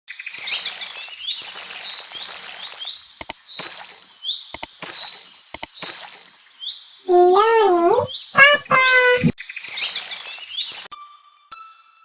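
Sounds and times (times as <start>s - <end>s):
birds chirping and trilling: 7.1s - 9.3s.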